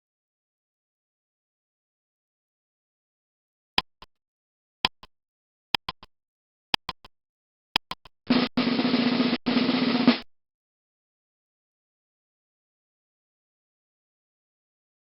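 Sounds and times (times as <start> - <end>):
sharp ticks with echoes: 3.8 - 4.2, 4.8 - 5.1, 5.8 - 6.1, 6.8 - 7.1, 7.8 - 8.5.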